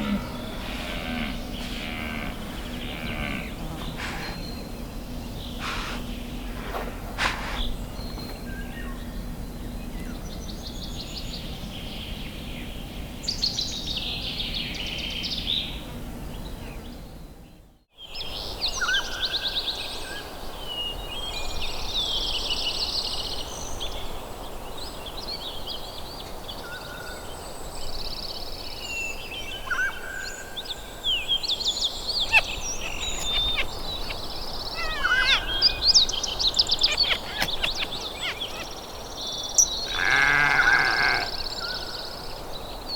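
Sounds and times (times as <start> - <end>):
birds chirping and trilling: 0.0 - 17.2, 28.9 - 42.9
steady outdoor hiss: 0.0 - 42.9.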